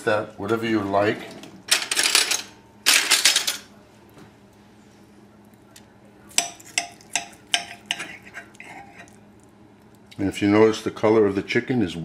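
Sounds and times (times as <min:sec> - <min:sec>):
knife scraping on plate: 0:06.4 - 0:09.2.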